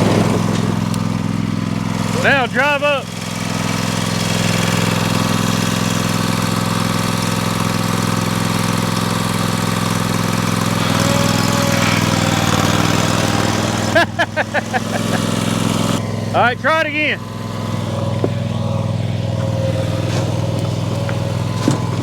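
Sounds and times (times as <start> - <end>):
tractor engine under load: 0.0 - 22.0.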